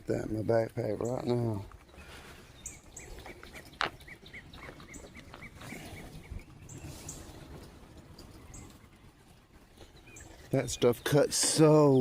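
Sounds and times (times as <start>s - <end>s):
bird chirping rapidly: 1.9s - 7.5s, 9.8s - 12.0s.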